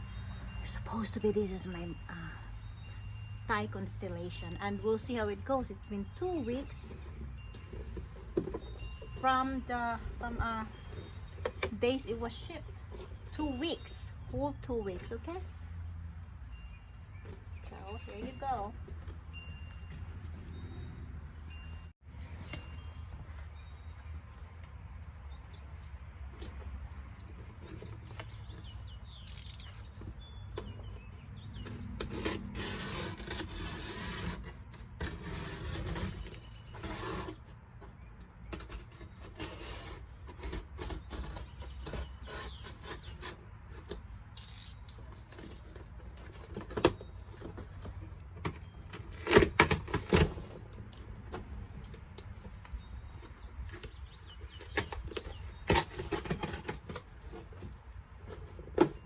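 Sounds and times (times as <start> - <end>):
box and packing being opened: 6.0 - 15.3, 26.2 - 59.0.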